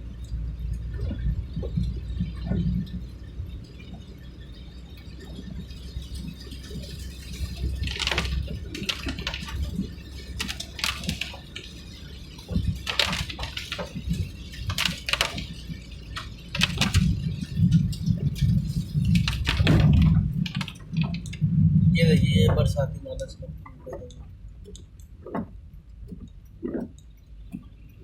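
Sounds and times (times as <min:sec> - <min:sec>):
vehicle road rumble: 0:00.0 - 0:28.0
clicks and rattles: 0:06.1 - 0:21.5.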